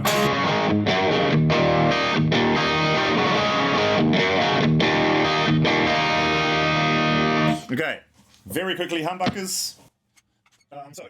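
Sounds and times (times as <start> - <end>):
distorted electric guitar chords: 0.0 - 7.6.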